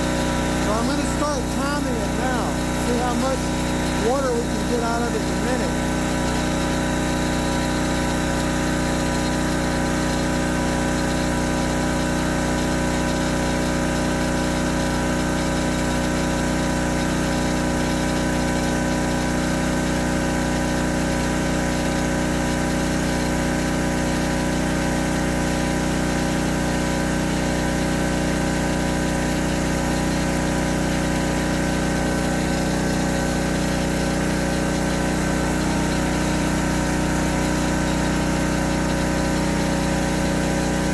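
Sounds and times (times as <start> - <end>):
pressure washer running: 0.0 - 40.9.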